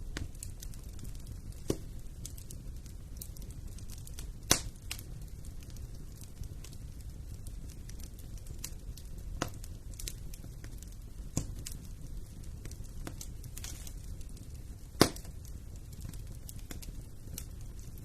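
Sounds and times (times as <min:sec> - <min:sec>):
fire crackles and pops: 0:00.0 - 0:18.0
low rumble of flame: 0:00.0 - 0:18.0.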